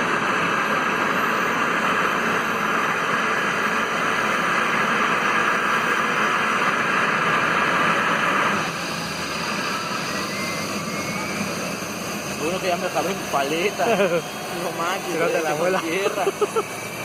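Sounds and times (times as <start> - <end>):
helicopter turbine and rotor rush: 0.0 - 17.0.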